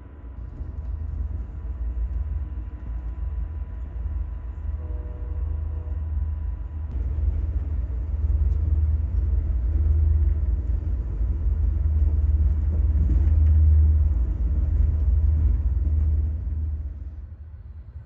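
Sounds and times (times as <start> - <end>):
passenger train rumbling: 0.0 - 18.0.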